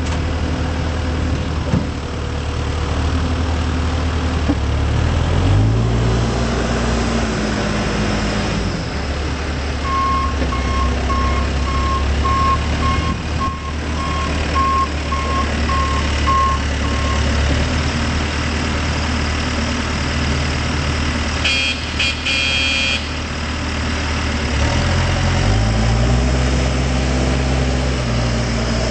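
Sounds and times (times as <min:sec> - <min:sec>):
backhoe diesel engine running: 0:00.0 - 0:28.9
reversing alarm beeps: 0:09.8 - 0:17.3, 0:21.5 - 0:23.1.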